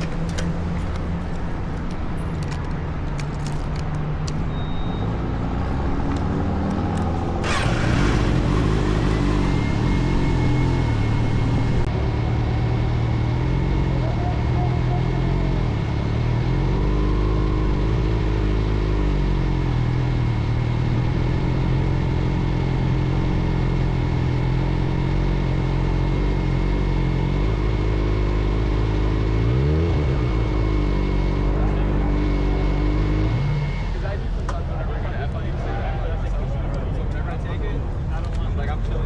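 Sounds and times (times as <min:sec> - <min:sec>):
wind and road noise: 0:00.0 - 0:14.0
motorcycle engine cruising: 0:05.1 - 0:12.3.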